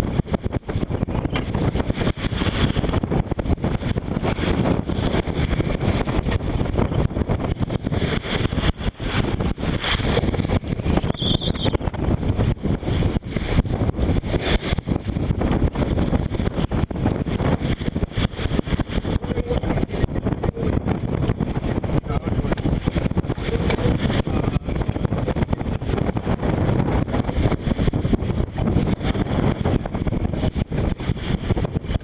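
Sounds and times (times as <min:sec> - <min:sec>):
rushing sea: 0:00.0 - 0:32.0
wind buffeting microphone: 0:00.0 - 0:32.0
faint whistle: 0:11.1 - 0:11.8.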